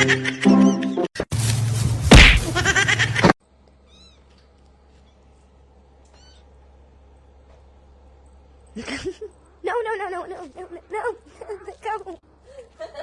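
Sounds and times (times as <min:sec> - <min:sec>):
sudden hit: 0:02.1 - 0:02.5.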